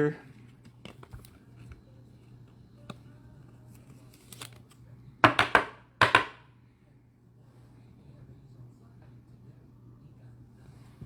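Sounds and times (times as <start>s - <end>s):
packaging tearing and crinkling: 4.0s - 4.7s.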